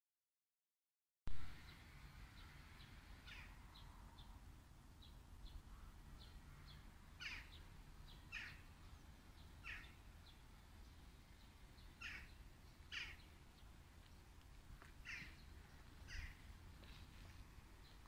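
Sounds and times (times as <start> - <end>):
harsh bird cries: 3.2 - 3.6, 5.7 - 8.7, 9.6 - 10.0, 12.0 - 13.3, 15.0 - 16.4.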